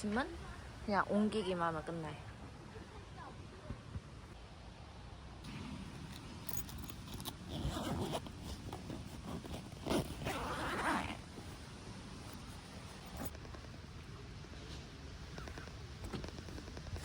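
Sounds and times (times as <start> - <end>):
zipper being pulled: 6.5 - 13.3.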